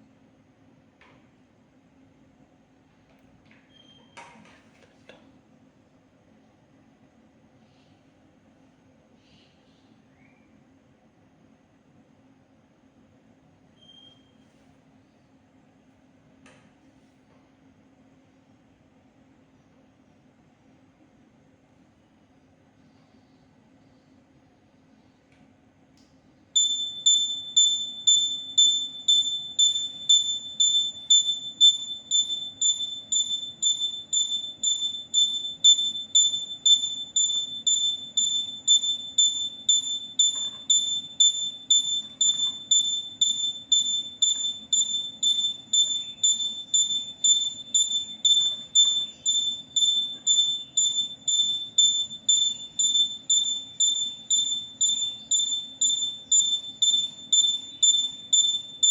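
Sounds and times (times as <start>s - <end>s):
electronic buzzer beeping: 26.6s - 58.9s
faint low hum: 26.6s - 58.9s.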